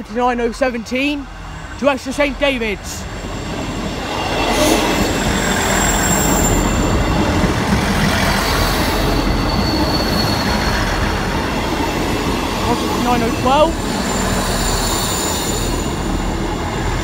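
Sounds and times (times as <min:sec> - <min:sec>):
train wheels rumbling on rail: 0:00.0 - 0:17.0
high wheel squeal: 0:03.0 - 0:11.2, 0:13.5 - 0:16.9.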